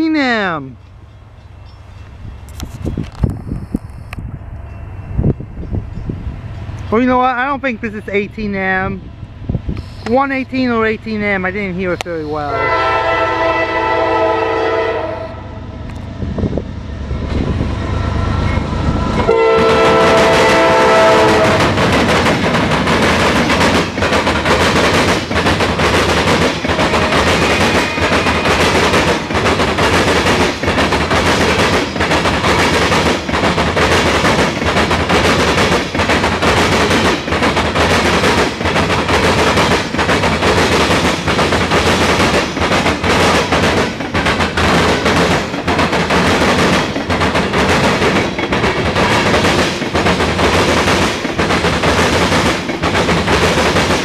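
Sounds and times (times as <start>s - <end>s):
train air horn: 12.5s - 15.6s, 19.2s - 21.6s
train wheels clacking: 18.3s - 54.0s.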